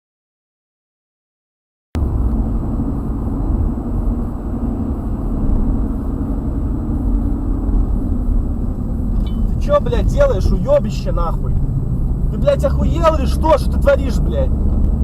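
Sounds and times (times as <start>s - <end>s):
car engine and road rumble: 2.0s - 15.0s.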